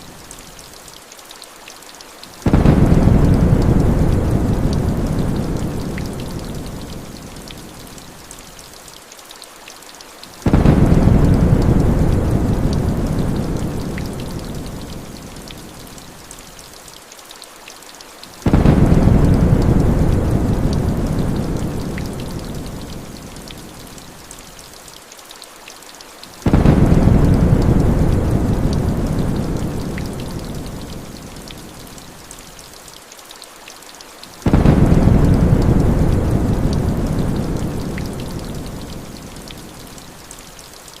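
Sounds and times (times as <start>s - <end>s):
heavy rain hissing: 2.2s - 8.8s, 10.2s - 16.8s, 17.6s - 24.8s, 26.1s - 33.0s, 34.0s - 41.0s
rolling thunder: 2.4s - 6.9s, 10.5s - 14.9s, 18.5s - 22.8s, 26.5s - 31.0s, 34.5s - 39.1s.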